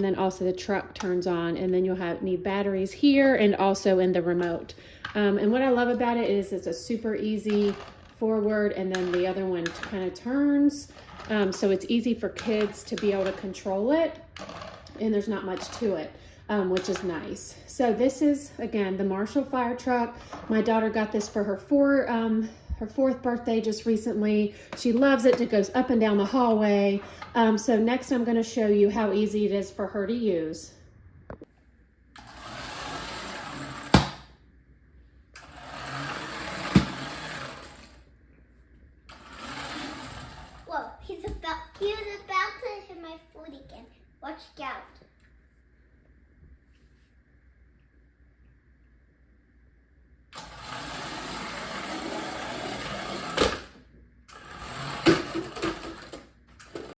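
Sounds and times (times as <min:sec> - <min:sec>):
toy motor and gears whirring: 0:32.2 - 0:34.2, 0:35.4 - 0:38.0, 0:39.1 - 0:40.7, 0:50.4 - 0:53.7, 0:54.3 - 0:57.0.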